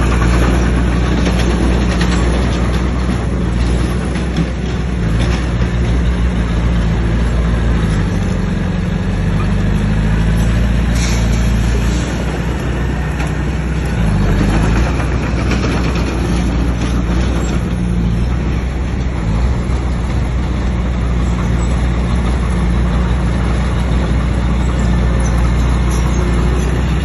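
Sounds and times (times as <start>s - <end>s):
heavy diesel engine under load: 0.0s - 27.0s.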